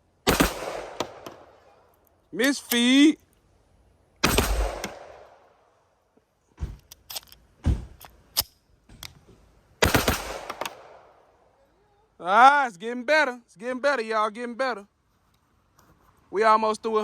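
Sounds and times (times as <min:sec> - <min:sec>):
pistol shots with ringing tail: 0:00.2 - 0:01.6, 0:04.2 - 0:05.4, 0:09.8 - 0:11.2.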